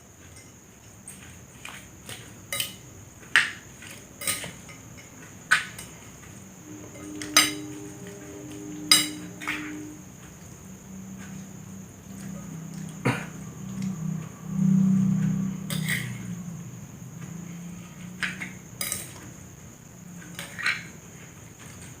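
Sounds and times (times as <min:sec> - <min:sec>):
metal utensil clinking against dish: 0:02.5 - 0:02.8, 0:04.2 - 0:05.9.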